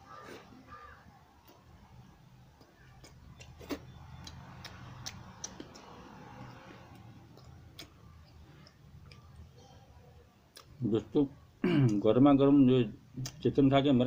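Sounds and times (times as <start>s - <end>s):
person chewing with lip smacks: 2.6s - 9.5s.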